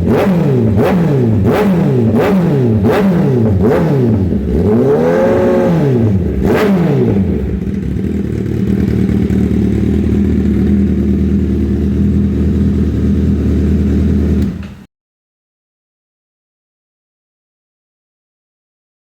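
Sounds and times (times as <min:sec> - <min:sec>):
motorcycle engine revving and idling: 0:00.0 - 0:14.9.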